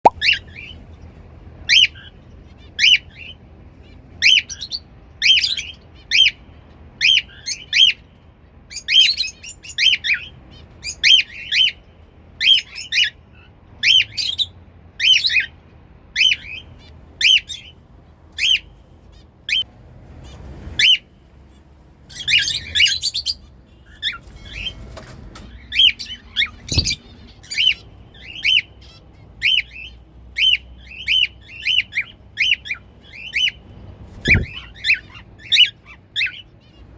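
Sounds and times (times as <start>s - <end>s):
cockatiels whistling calls: 1.7s - 2.1s, 4.2s - 6.4s, 7.0s - 8.0s, 12.4s - 15.5s, 16.2s - 17.7s, 20.8s - 21.0s, 22.1s - 24.8s, 25.6s - 33.6s, 34.2s - 36.8s
cockatiels chattering: 1.7s - 6.4s, 8.7s - 11.8s, 20.2s - 36.9s.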